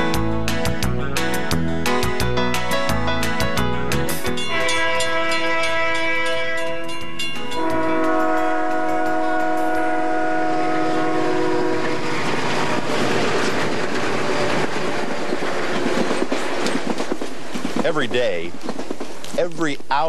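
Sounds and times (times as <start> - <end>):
freight train wheels clattering: 0.0 - 20.0
locomotive air horn: 4.4 - 12.9.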